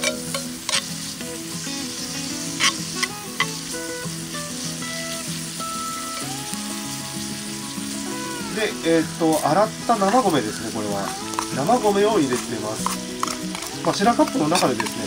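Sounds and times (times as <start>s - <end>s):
metal spoon scraping a pan: 0.0s - 1.1s, 2.4s - 3.7s, 9.3s - 15.0s
bacon and onion sizzling in a skillet: 0.0s - 15.0s.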